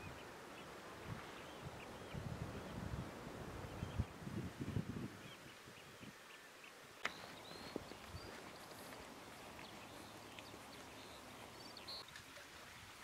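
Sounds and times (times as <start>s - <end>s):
faint bird chirps: 5.2s - 12.2s.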